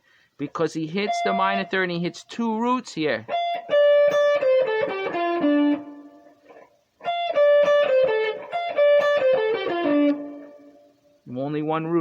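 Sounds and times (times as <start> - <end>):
guitar blues lick: 3.2 - 10.9.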